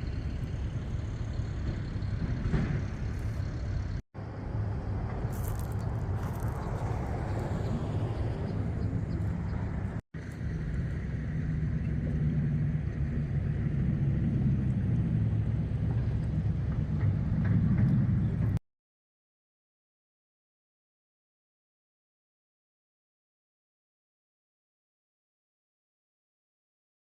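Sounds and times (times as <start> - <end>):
car engine and road noise: 0.0 - 18.6.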